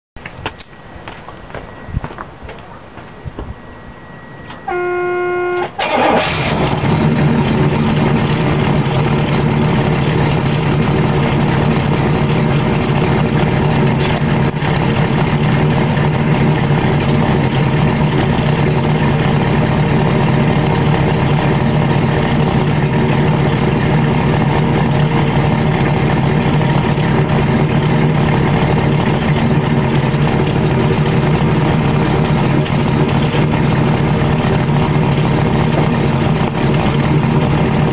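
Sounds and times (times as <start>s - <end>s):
car engine starting and idling: 0.2s - 37.9s
starter motor whine: 3.3s - 19.8s.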